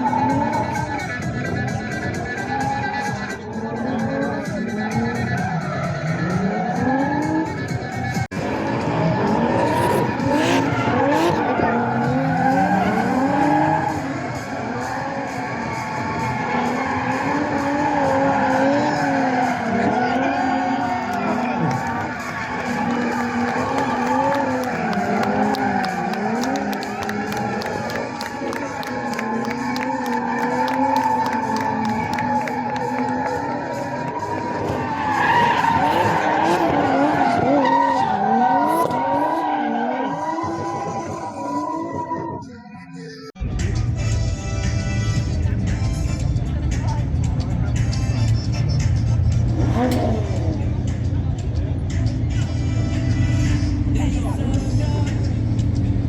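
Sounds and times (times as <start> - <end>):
car engine wavering: 0.0 - 42.5, 43.7 - 56.0
tyres screeching: 14.8 - 41.8
tyre squeal: 28.9 - 42.5.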